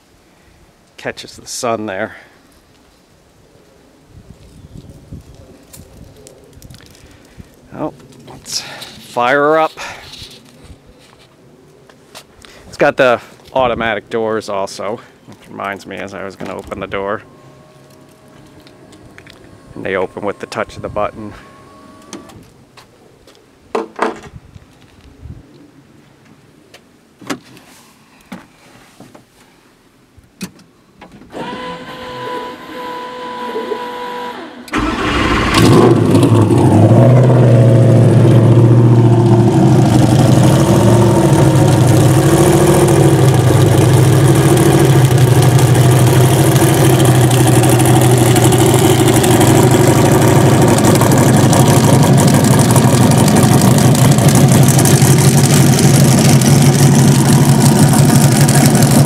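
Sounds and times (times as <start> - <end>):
steady whine: 15.6 - 22.5, 31.3 - 59.0
race engine starting and idling: 31.3 - 59.0.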